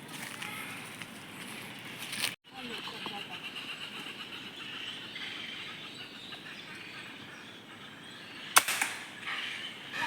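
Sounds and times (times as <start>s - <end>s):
gunshot with echo: 8.6s - 9.1s.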